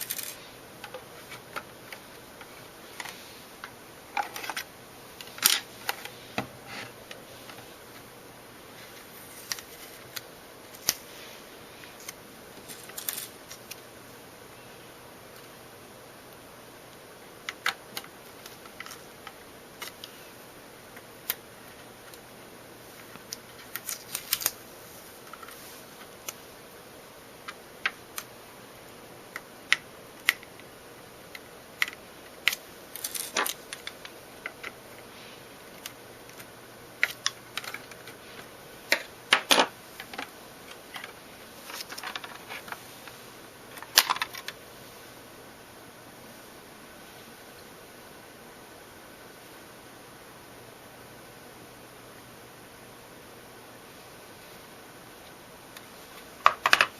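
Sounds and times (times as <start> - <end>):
plastic parts clicking and snapping: 17.4 - 20.1, 29.3 - 30.7, 31.3 - 34.8, 35.7 - 38.2, 38.9 - 42.8, 43.7 - 44.6, 55.8 - 56.9.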